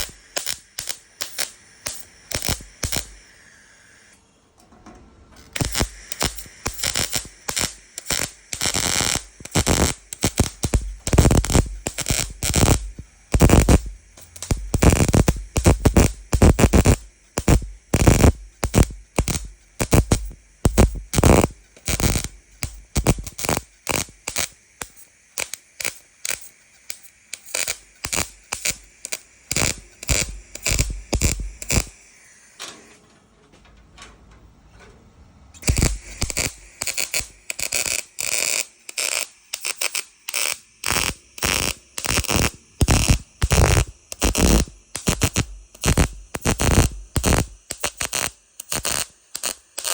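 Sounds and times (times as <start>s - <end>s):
welding arc bursts: 0.0s - 4.2s, 5.4s - 32.7s, 35.6s - 49.9s.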